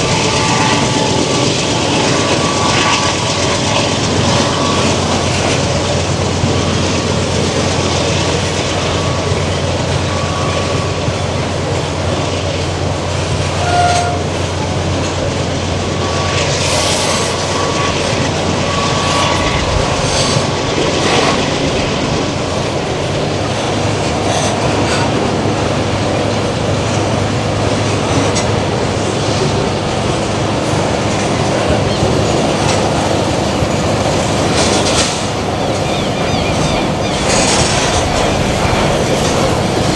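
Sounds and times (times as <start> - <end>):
low drone: 0.0 - 39.9
train wheels clacking on rails: 0.0 - 39.9
wheel squeals: 13.6 - 14.3, 15.9 - 21.9.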